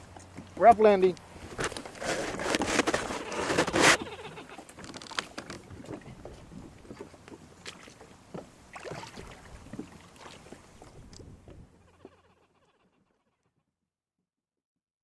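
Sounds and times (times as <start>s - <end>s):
kayak knocking and scraping: 0.0s - 12.2s
small clicks and bumps: 4.6s - 7.4s
low wind rumble: 5.6s - 11.9s.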